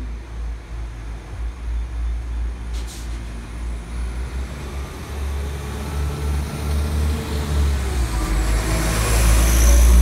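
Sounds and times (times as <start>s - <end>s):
diesel train engine and wheels: 0.0s - 10.0s
brief hiss: 2.7s - 3.3s
deep rumble: 9.5s - 10.0s.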